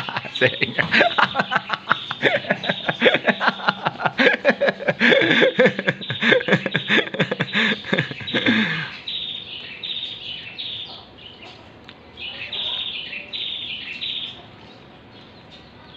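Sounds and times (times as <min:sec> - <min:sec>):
small bird chirping: 0:00.0 - 0:04.5, 0:05.1 - 0:15.9.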